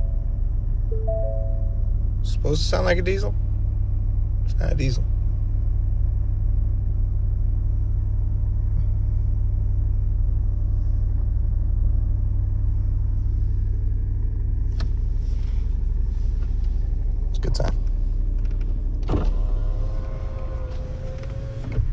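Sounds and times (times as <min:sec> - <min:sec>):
car engine idling: 0:00.0 - 0:21.9.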